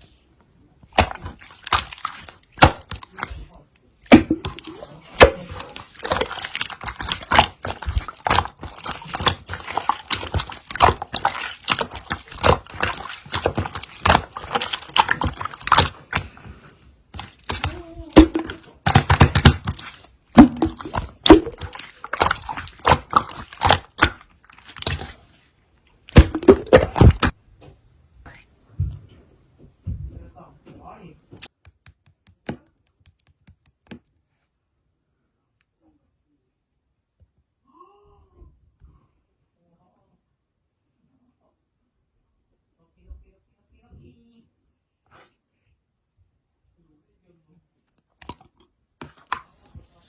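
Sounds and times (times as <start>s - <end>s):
slime squishing by hand: 0.0s - 27.4s.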